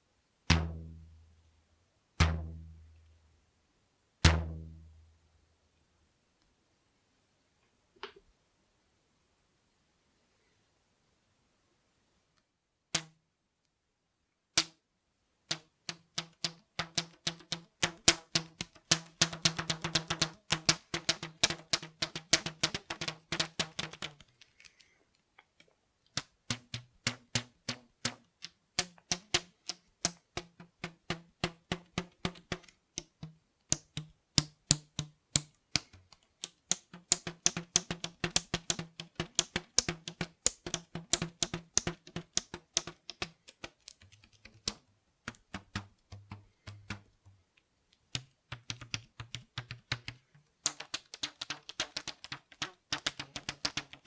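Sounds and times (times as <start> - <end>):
rubber bands twanging: 0.5 - 1.1, 2.2 - 2.9, 4.2 - 4.9, 13.0 - 13.2, 15.5 - 24.2, 26.2 - 47.4, 48.2 - 54.0.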